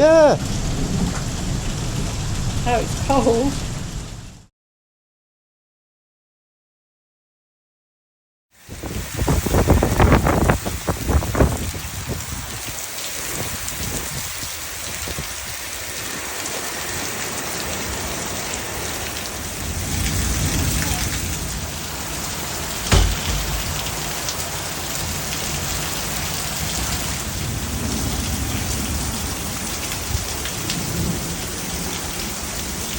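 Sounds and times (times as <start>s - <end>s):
heavy rain pouring: 0.0s - 4.5s, 8.6s - 32.9s
thunder rumbling: 0.0s - 4.5s, 19.4s - 25.7s
sharp bang: 22.9s - 24.2s.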